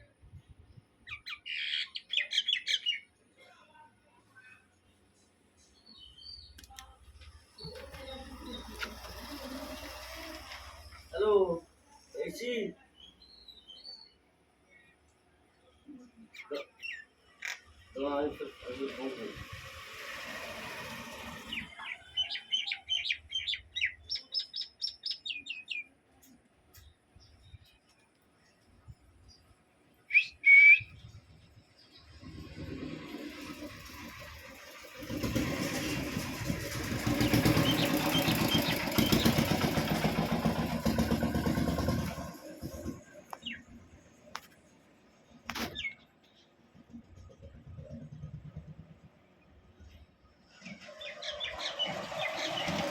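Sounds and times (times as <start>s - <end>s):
small engine running: 7.6s - 11.2s, 18.6s - 21.9s, 32.3s - 43.6s, 51.0s - 52.9s.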